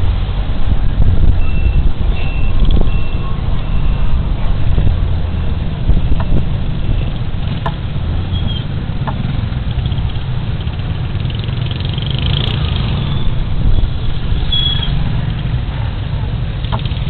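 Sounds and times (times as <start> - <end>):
wind rumble: 0.0 - 16.6.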